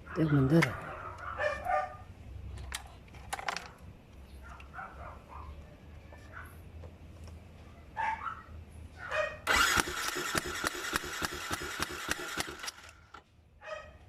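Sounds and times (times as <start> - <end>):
motorcycle starter cranking engine: 9.5 - 13.2.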